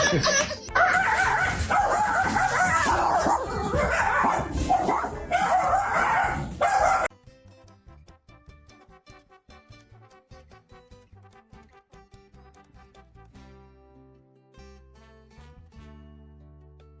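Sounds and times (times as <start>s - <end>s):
dog yipping and whining: 0.7s - 7.1s.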